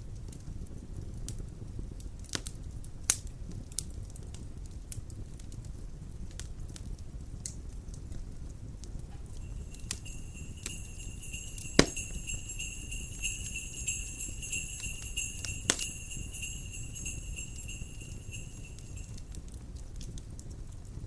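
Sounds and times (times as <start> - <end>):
wood fire crackling: 1.2 - 21.0
sleigh bells jingling: 9.4 - 19.4.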